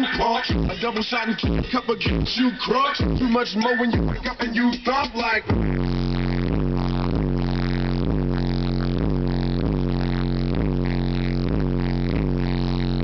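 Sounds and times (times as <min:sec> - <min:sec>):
hip-hop beat with heavy bass: 0:00.0 - 0:13.0.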